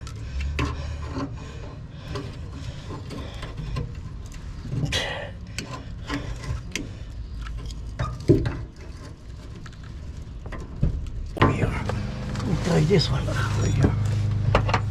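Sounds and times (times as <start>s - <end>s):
low rumble: 11.3s - 14.9s.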